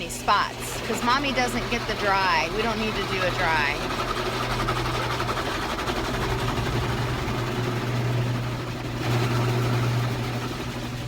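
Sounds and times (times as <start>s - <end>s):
car wash machinery humming: 0.0s - 11.0s.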